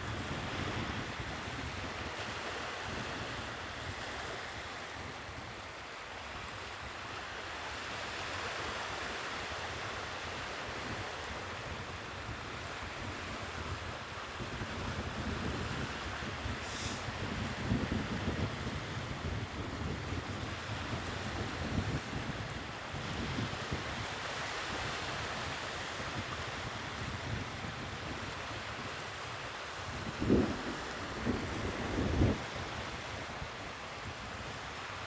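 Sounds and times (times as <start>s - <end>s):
wind buffeting microphone: 0.0s - 3.5s, 10.7s - 34.8s
sea waves breaking: 7.2s - 35.0s.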